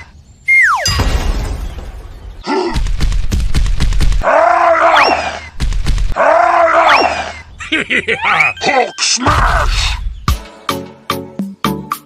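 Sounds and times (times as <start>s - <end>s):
cartoon crash with rumble: 0.9s - 3.3s
groaning cry: 6.2s - 10.0s.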